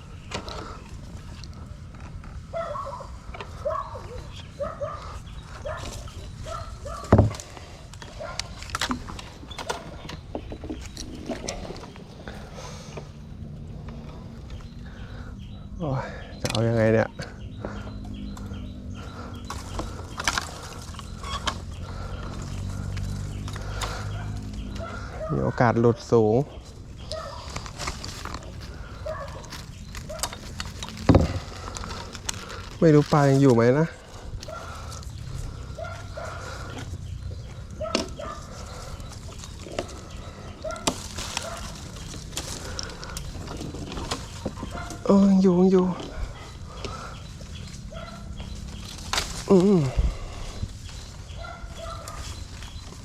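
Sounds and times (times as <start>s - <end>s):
dog barking: 2.5s - 7.2s, 8.2s - 8.5s, 24.0s - 25.6s, 27.1s - 27.4s, 29.0s - 29.5s, 35.8s - 36.5s, 37.8s - 38.6s, 40.6s - 41.8s, 44.7s - 45.1s, 47.9s - 48.4s, 51.3s - 52.3s.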